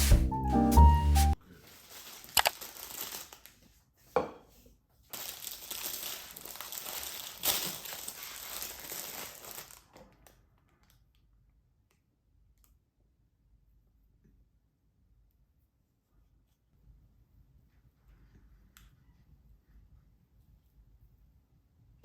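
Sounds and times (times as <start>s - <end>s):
crinkling and rustling: 1.4s - 3.8s, 5.0s - 11.2s.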